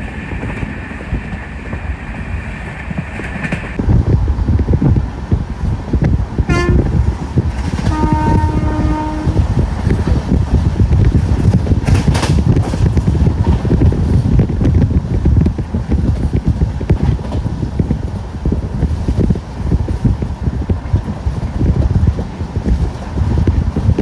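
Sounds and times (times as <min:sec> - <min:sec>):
train clattering on rails: 0:00.0 - 0:24.0
train horn: 0:06.5 - 0:07.1, 0:07.8 - 0:09.9.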